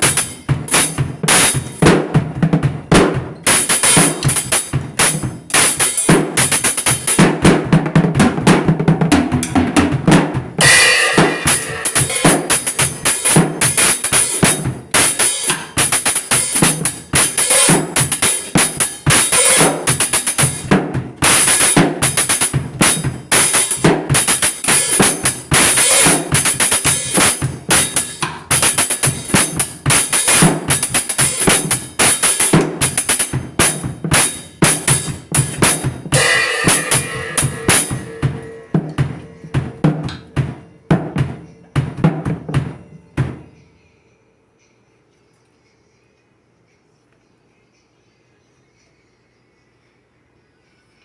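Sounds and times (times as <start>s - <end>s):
drums and cymbals playing: 0.0s - 43.6s.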